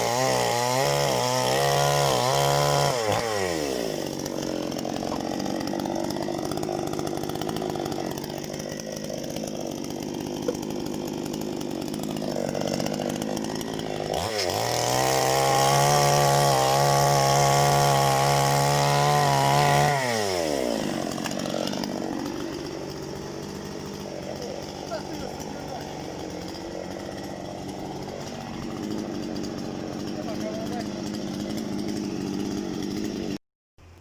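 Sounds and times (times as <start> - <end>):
chainsaw running and revving: 0.0 - 34.0.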